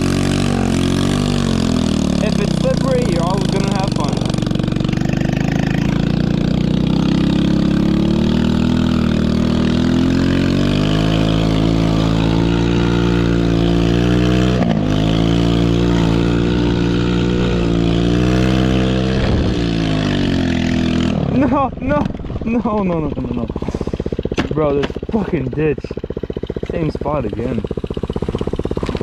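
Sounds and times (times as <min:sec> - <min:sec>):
small engine revving high: 0:00.0 - 0:21.6.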